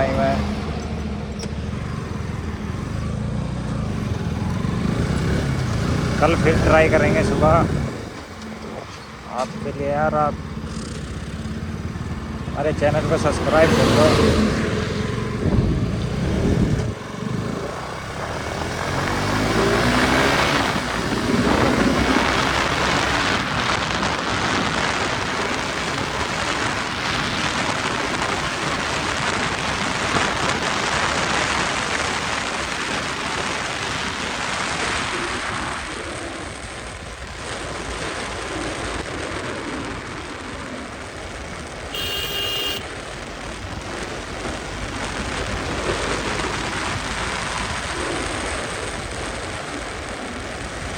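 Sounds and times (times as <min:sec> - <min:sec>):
motorcycle engine: 0:00.0 - 0:50.9
road noise: 0:00.0 - 0:50.9
wind rushing over microphone: 0:04.0 - 0:42.0
vehicle horn: 0:41.9 - 0:43.0.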